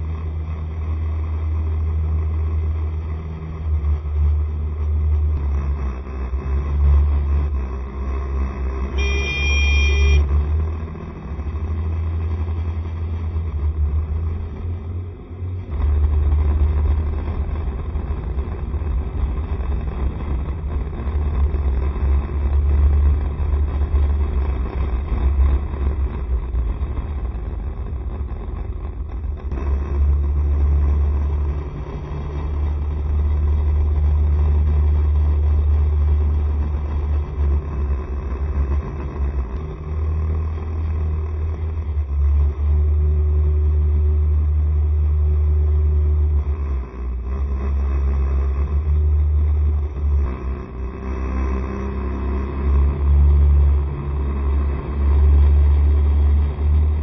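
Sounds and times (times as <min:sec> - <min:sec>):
scooter engine and road noise: 0:00.0 - 0:57.0
wind rumble on microphone: 0:13.4 - 0:44.7.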